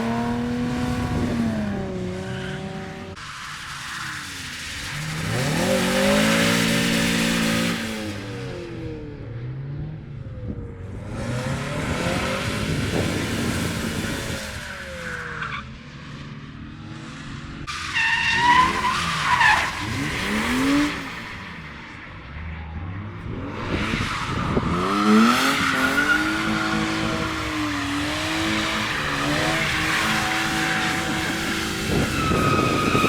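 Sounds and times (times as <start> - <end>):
tires squealing: 0.0 - 8.4, 11.1 - 33.0
car engines revving: 0.0 - 33.0
tire hiss from sliding tires: 3.1 - 8.4, 12.2 - 16.2, 23.7 - 33.0.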